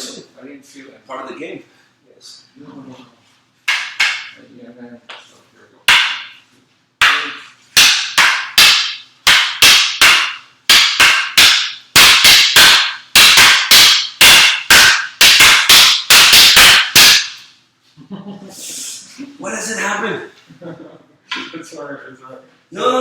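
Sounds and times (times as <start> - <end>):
wooden sticks clacking together: 3.7 - 4.4, 7.0 - 17.5.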